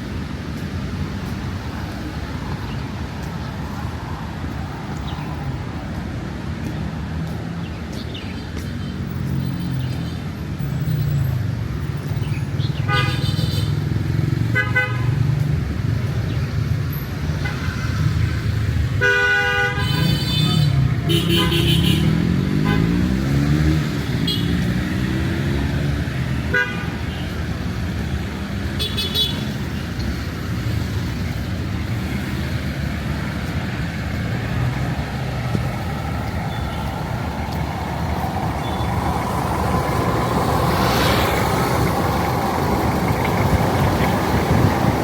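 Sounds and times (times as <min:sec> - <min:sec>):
road traffic passing: 0:00.0 - 0:45.0
vehicle horn toots: 0:14.6 - 0:15.1, 0:19.0 - 0:23.0
vehicle engine speeding up: 0:22.0 - 0:26.4, 0:32.0 - 0:45.0.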